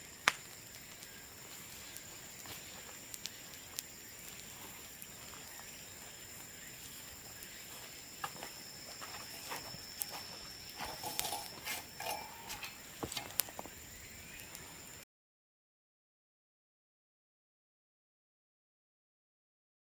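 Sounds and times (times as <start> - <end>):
bonfire crackling: 0.0 - 15.0
sharp pops of bamboo: 0.2 - 0.6.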